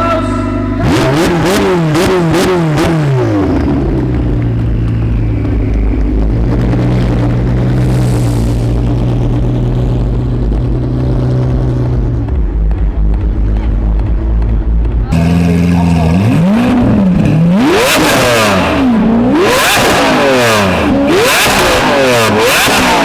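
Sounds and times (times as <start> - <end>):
sports car engine revving and idling: 0.0 - 23.0.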